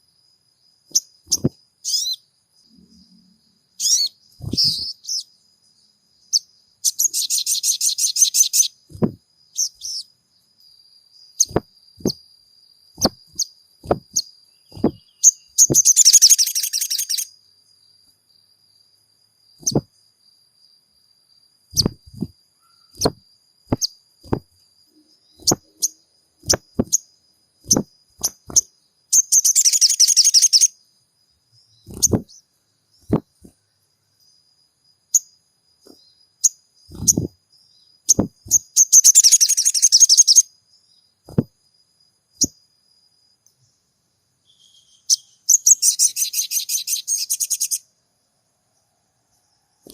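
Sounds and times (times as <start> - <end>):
bird rattling trills: 0.9 - 2.2, 3.8 - 5.2, 13.0 - 17.3, 19.6 - 19.9, 21.7 - 24.4, 25.3 - 30.7, 31.9 - 32.4, 36.9 - 37.4, 38.1 - 40.4.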